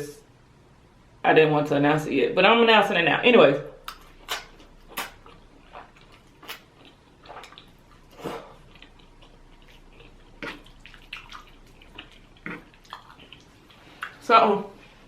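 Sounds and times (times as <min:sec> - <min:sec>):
wet lip smacks: 0:03.8 - 0:05.3.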